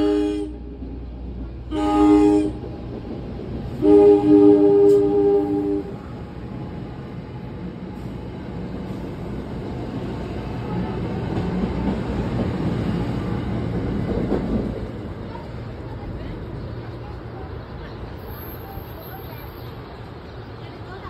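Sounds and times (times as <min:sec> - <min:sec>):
train horn blast: 0:00.0 - 0:00.8, 0:01.6 - 0:02.8, 0:03.8 - 0:06.1
train rumbling past: 0:00.0 - 0:21.0.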